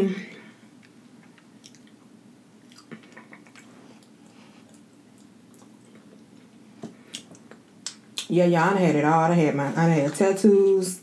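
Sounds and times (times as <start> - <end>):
faint chewing of food: 0.7 - 8.3
wet mouth clicks and smacks: 0.8 - 6.5, 7.1 - 8.3.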